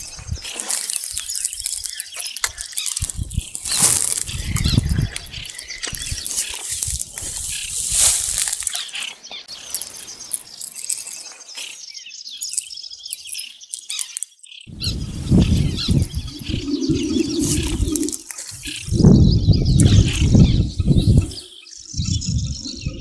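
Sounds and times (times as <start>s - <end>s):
small birds chirping: 0.0s - 23.0s
low rumbling with thumps: 22.0s - 23.0s.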